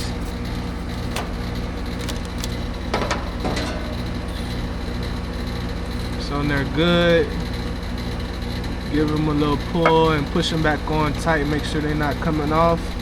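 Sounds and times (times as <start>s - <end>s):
low machine hum: 0.0s - 13.0s
wires clicking and crackling: 1.0s - 2.6s.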